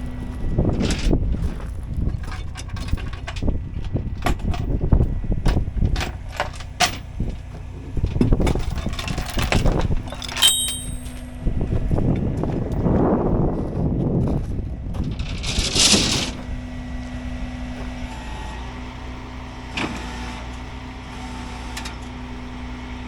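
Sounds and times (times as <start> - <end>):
truck engine low rumble: 0.0 - 10.4, 11.4 - 23.0
clanks and rattles: 2.0 - 4.8, 8.1 - 11.3.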